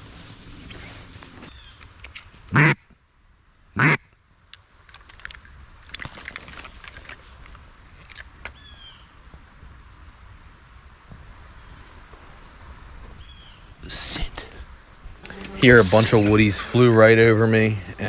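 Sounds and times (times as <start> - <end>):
duck quacks: 2.5 - 2.8, 3.8 - 4.0.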